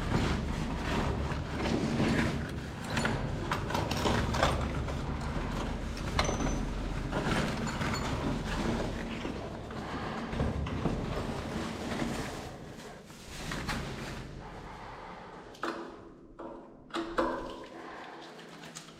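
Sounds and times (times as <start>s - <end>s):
knocks and clatter of mechanical handling: 0.0s - 14.3s, 15.5s - 17.7s.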